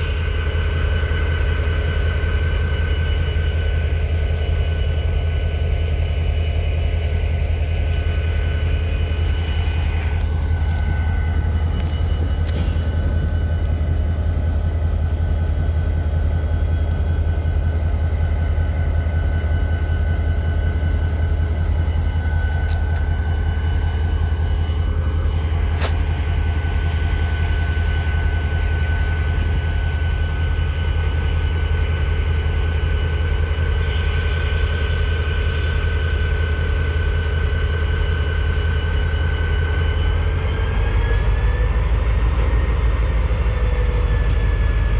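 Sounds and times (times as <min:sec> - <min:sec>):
rail cars squealing: 0:00.0 - 0:44.9
train rumble: 0:00.0 - 0:44.9
hiss: 0:33.8 - 0:37.2.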